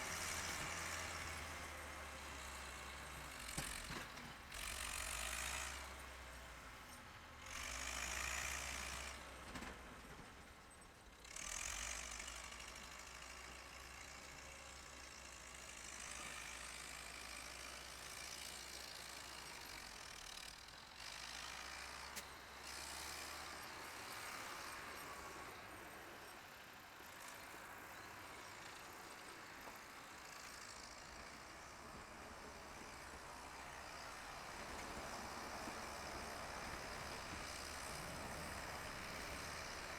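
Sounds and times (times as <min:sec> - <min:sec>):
faint engine running: 0:29.1 - 0:39.9.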